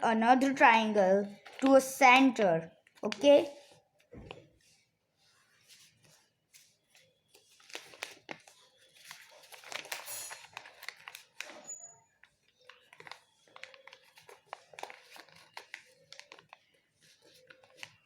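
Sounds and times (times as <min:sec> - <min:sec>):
paper being folded and creased: 0:01.4 - 0:01.9, 0:04.3 - 0:18.0.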